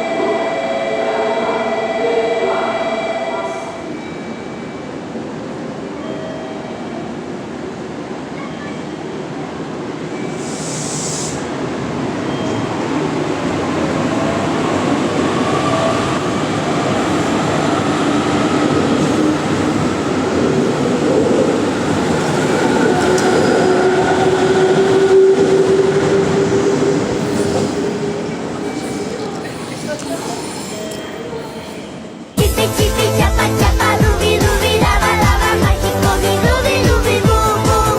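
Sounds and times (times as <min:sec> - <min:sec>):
electric train rolling: 0:00.0 - 0:37.9
air hiss: 0:10.3 - 0:11.6.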